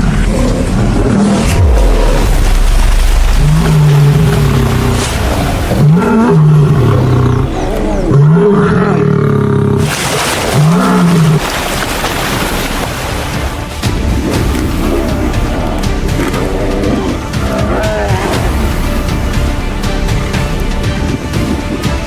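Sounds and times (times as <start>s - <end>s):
big cat growling: 0.0s - 11.6s, 14.2s - 19.0s.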